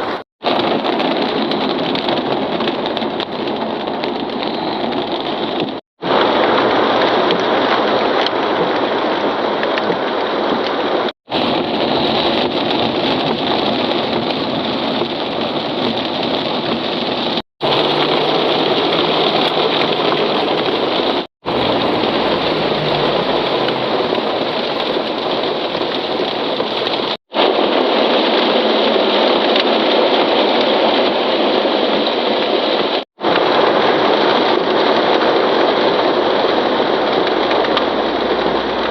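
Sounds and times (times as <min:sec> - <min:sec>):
heavy rain pouring: 0:00.0 - 0:38.9
low vehicle engine hum: 0:17.6 - 0:25.4.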